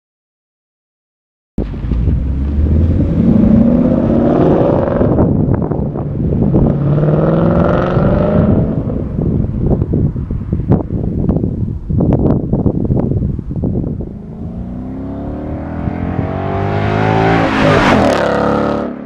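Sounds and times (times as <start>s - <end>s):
car engine accelerating hard: 1.9s - 9.0s, 14.0s - 19.0s.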